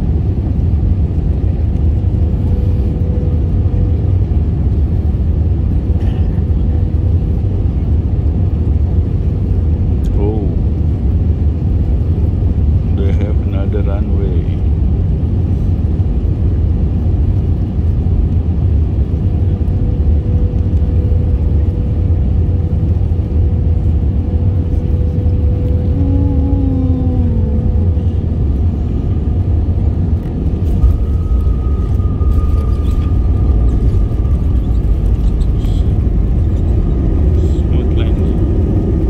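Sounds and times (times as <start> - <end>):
faint engine tones: 0.0 - 39.0
jet engine cabin rumble: 0.0 - 39.0
short falling tone: 30.5 - 35.4.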